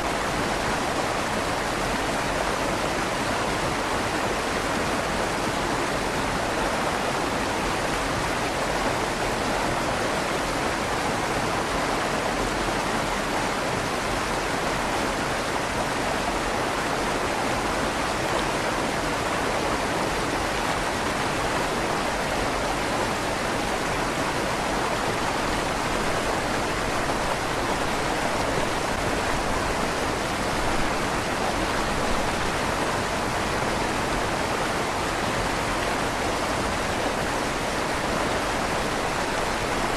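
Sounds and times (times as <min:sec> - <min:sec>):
river water rushing through culvert: 0:00.0 - 0:39.9.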